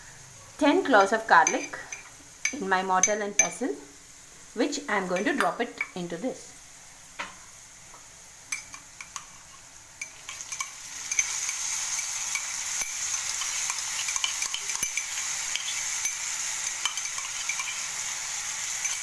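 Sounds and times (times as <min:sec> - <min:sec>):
potatoes frying in oil: 0:00.0 - 0:19.0
steel spoon clicking against bowl: 0:10.0 - 0:17.8, 0:18.8 - 0:19.0.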